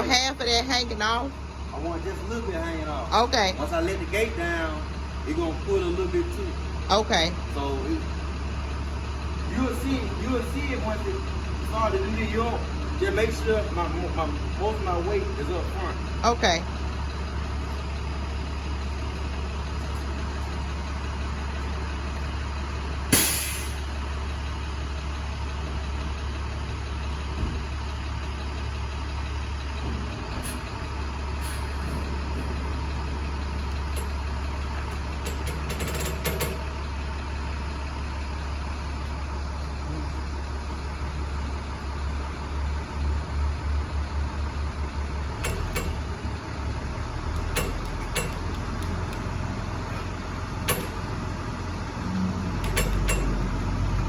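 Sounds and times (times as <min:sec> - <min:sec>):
truck engine idling: 0:00.0 - 0:54.0
sharp bang: 0:23.1 - 0:23.8.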